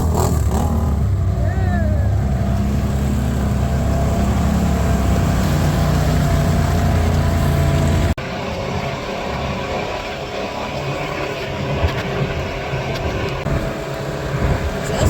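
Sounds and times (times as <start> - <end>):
four-wheeler engine running: 0.0 - 15.0.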